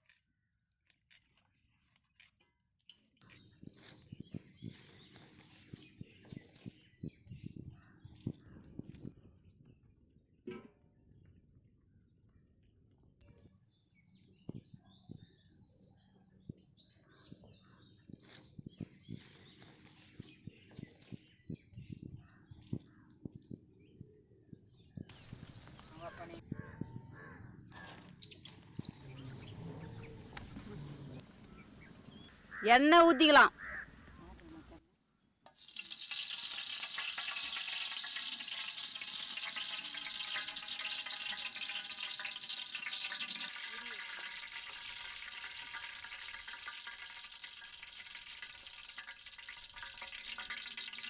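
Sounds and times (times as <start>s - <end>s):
oil sizzling in a pan: 25.2s - 26.4s, 29.0s - 34.8s, 35.5s - 51.0s
small birds chirping: 25.2s - 26.4s, 29.0s - 34.8s.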